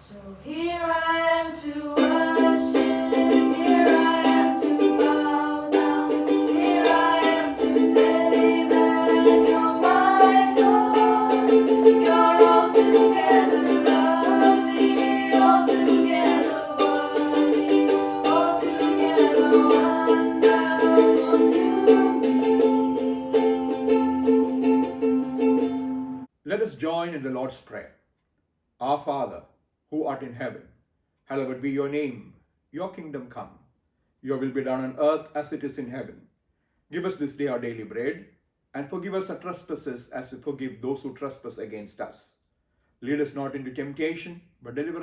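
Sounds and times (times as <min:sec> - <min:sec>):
strummed acoustic string instrument: 0:02.0 - 0:26.3.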